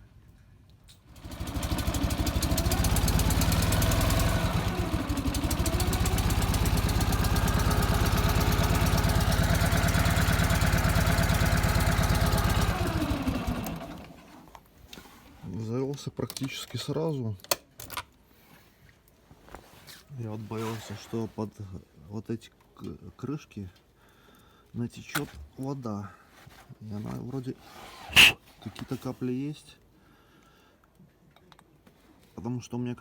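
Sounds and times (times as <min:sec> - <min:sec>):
motorcycle engine starting and running: 0:01.0 - 0:14.5.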